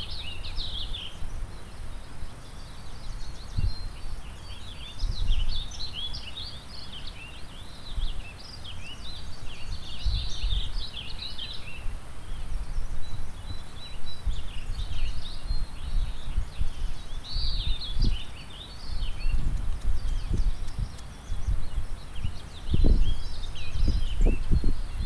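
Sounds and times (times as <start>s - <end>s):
songbirds singing and chirping: 0.0s - 25.0s
wind gusting on microphone: 4.8s - 5.6s, 9.1s - 25.0s.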